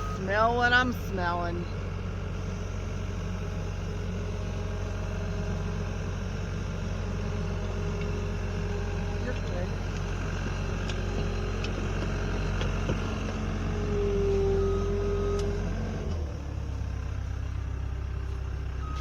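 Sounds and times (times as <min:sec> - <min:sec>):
farm machine engine running: 0:00.0 - 0:19.0
short beep: 0:18.8 - 0:19.0.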